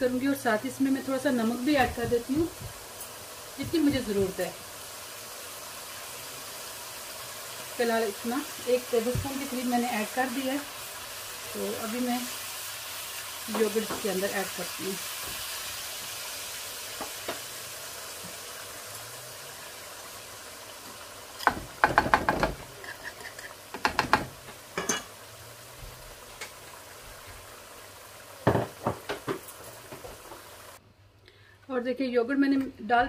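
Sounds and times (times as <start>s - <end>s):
masala sizzling in a wok: 0.0s - 30.8s
spoon knocking and scraping: 21.4s - 25.1s.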